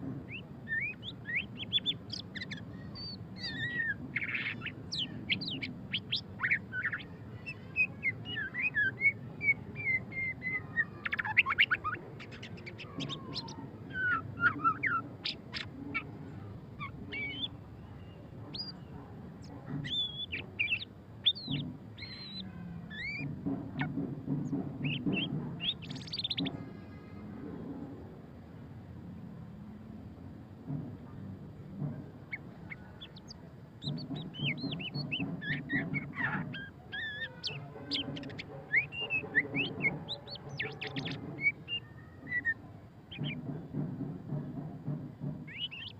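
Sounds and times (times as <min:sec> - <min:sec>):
bird singing whistled notes: 0:19.8 - 0:23.3, 0:45.5 - 0:45.9.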